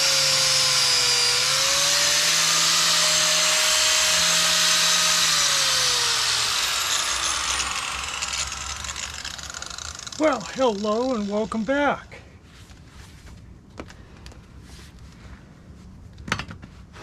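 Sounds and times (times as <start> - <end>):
electric power tool whining: 0.0 - 12.0.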